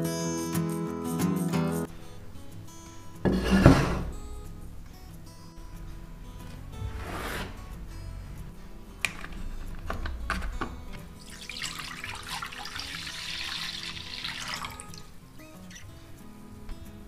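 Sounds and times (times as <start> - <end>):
liquid pouring into a pan: 11.1 - 15.2.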